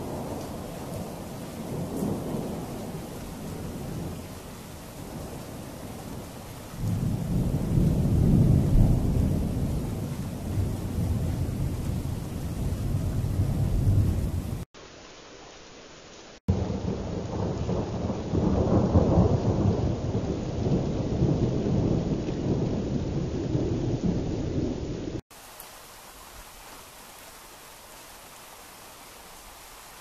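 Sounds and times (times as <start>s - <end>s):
rolling thunder: 0.0s - 14.6s, 16.5s - 25.2s
faint rain hiss: 0.0s - 30.0s.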